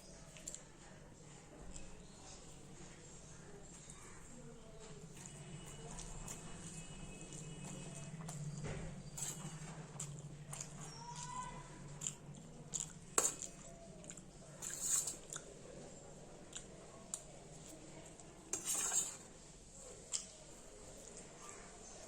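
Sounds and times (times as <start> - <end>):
chewing: 0.2 - 3.0, 3.6 - 22.0
slurping noodles: 14.6 - 15.3.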